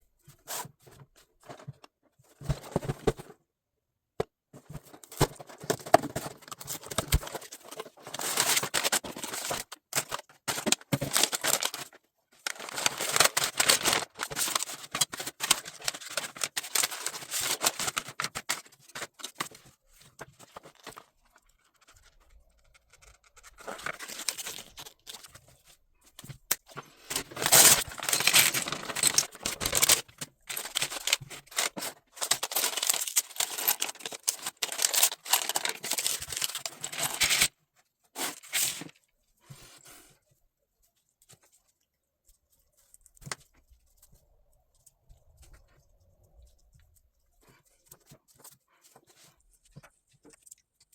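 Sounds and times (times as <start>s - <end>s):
packaging tearing and crinkling: 5.7s - 19.5s, 23.0s - 25.3s, 27.1s - 37.5s.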